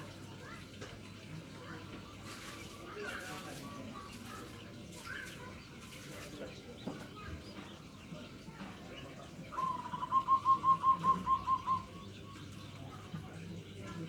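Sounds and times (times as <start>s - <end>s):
dove cooing: 9.6s - 12.0s.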